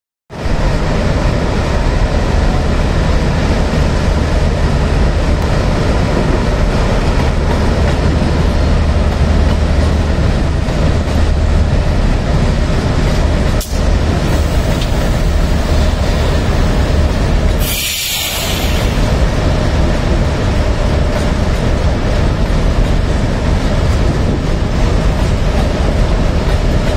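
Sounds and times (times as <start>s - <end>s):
train wheels rumbling on rail: 0.3s - 26.9s
loud air hiss: 17.5s - 19.1s.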